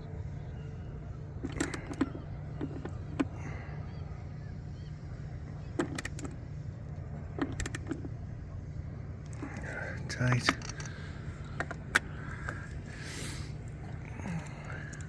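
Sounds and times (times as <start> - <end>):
steady low rumble: 0.0 - 15.0
wrench clicking and clinking: 10.3 - 12.2.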